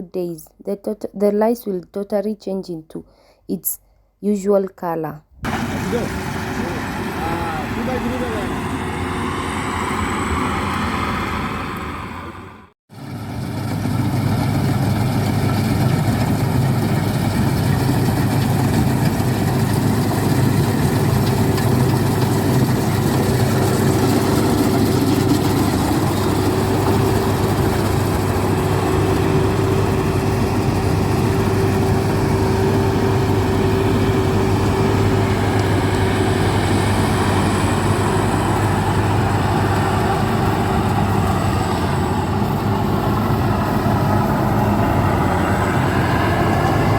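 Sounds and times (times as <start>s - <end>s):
diesel engine running steadily: 5.4s - 46.9s.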